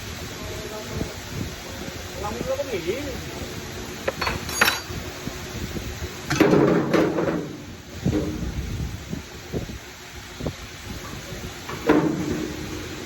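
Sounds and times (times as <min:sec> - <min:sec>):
metal parts scraping rattle: 0:04.1 - 0:05.0.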